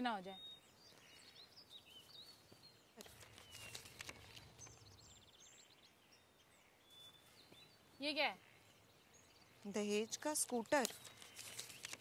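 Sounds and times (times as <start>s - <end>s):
small birds chirping: 0.0s - 12.0s
rustling: 3.0s - 4.8s, 10.7s - 12.0s.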